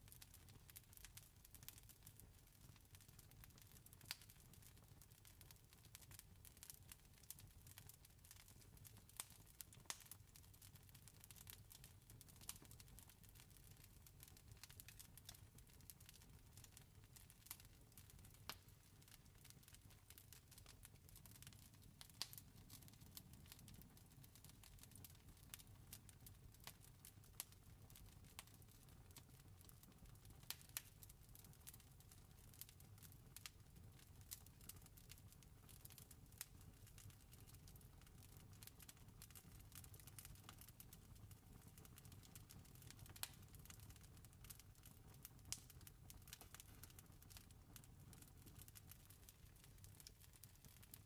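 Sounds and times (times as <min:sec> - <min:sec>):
wood fire crackling: 0:00.0 - 0:51.0
campfire crackling: 0:17.4 - 0:26.8, 0:27.4 - 0:28.5, 0:30.4 - 0:31.8, 0:33.3 - 0:33.5, 0:38.6 - 0:50.9.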